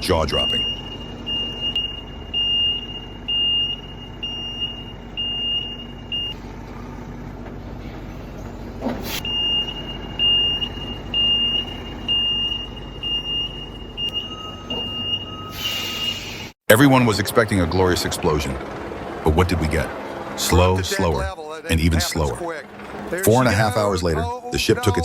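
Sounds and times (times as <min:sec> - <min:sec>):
truck reversing alarm beeping: 0:00.0 - 0:07.2, 0:07.9 - 0:16.6
truck engine running: 0:00.0 - 0:25.0.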